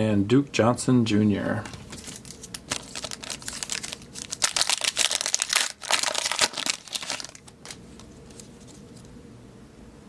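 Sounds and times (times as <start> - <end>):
foil wrapper crinkling and tearing: 1.9 - 8.8.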